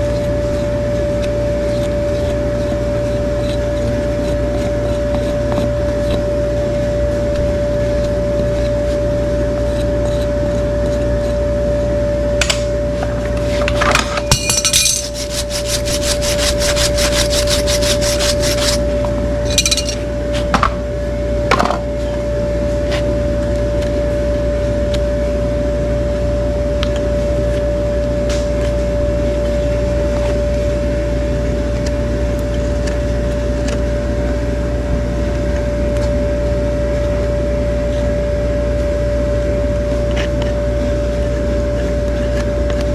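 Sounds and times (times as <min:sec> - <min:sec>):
hoof-trimming tool strokes: 0:00.0 - 0:12.6, 0:13.2 - 0:20.5
steady electrical hum: 0:00.0 - 0:42.9.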